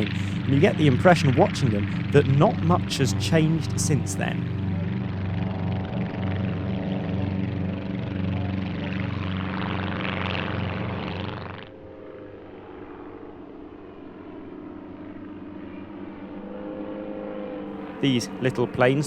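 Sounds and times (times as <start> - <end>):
rushing air of passing aircraft: 0.0 - 13.0
light aircraft engines droning: 0.0 - 19.0.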